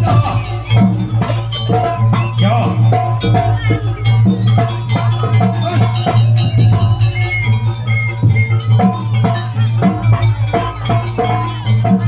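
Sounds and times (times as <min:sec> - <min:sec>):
drums: 0:00.0 - 0:12.0
metal percussion: 0:00.0 - 0:12.0
short high-pitched notes: 0:01.5 - 0:09.6.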